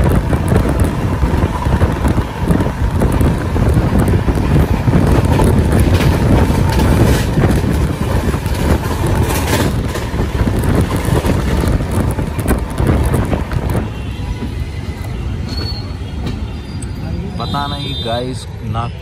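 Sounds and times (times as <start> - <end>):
wind buffeting microphone: 0.0 - 17.0
train wheels rumbling on track: 0.0 - 19.0.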